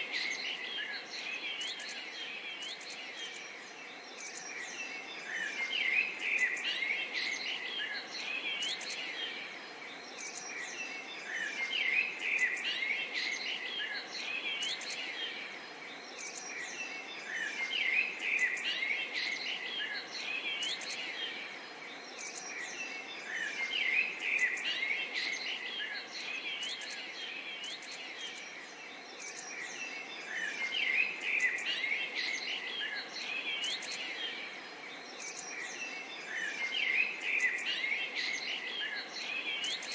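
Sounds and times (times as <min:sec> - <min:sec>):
faint background hiss: 0:00.0 - 0:39.9
small birds chirping: 0:00.0 - 0:39.9.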